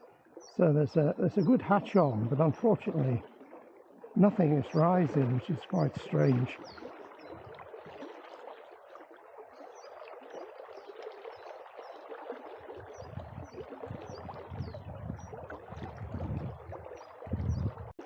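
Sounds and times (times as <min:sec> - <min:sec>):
small birds chirping: 0:00.0 - 0:03.2, 0:04.1 - 0:07.4, 0:12.9 - 0:16.4, 0:17.3 - 0:17.9
river water rushing: 0:04.2 - 0:06.6
wind buffeting microphone: 0:12.9 - 0:18.0.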